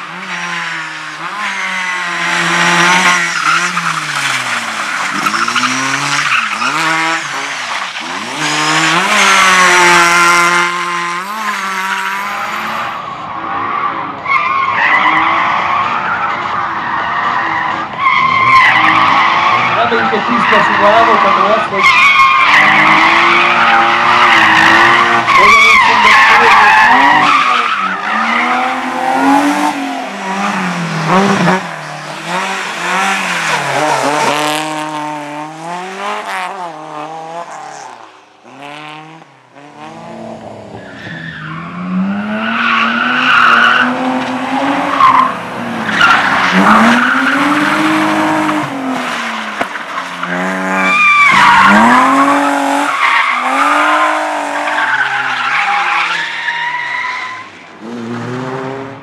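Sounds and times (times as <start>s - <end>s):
car engine revving: 0.0s - 13.1s, 14.8s - 59.0s
tyres squealing: 18.0s - 34.9s.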